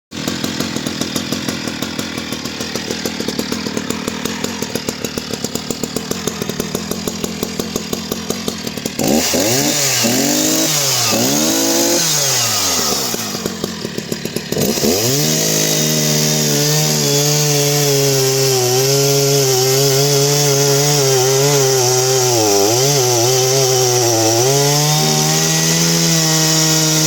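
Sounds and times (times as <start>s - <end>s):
chainsaw idling and revving: 0.1s - 27.0s.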